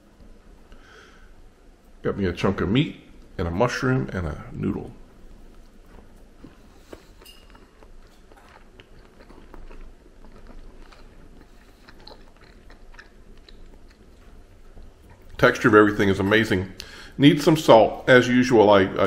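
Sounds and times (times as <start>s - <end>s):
man chewing food: 5.0s - 15.4s.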